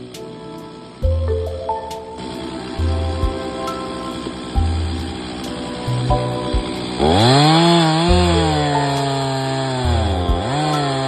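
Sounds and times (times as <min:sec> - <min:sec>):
background music: 0:00.0 - 0:11.0
chainsaw cutting: 0:00.0 - 0:11.0.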